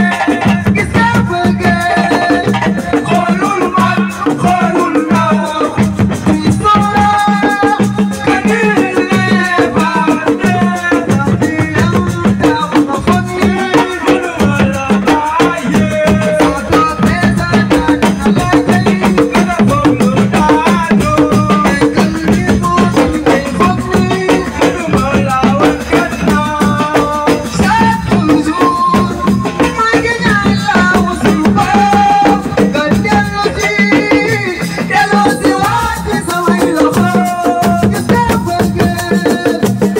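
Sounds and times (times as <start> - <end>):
drums: 0.0 - 39.9
person singing: 0.0 - 39.9.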